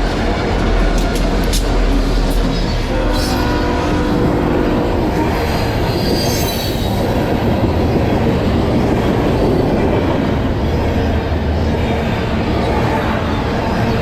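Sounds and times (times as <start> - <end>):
train wheels rumbling on rails: 0.0 - 14.0
high wheel squeal: 2.5 - 7.2.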